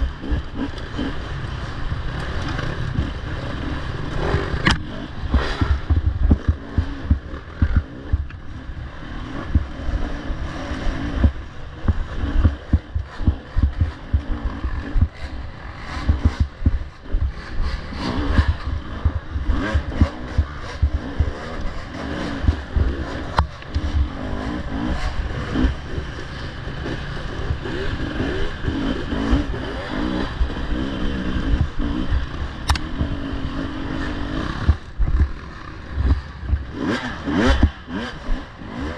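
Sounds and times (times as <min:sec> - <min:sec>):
dirt bike engine revving: 0:00.0 - 0:38.9
thumps and clatter: 0:04.3 - 0:08.4, 0:11.2 - 0:15.2, 0:15.9 - 0:21.7.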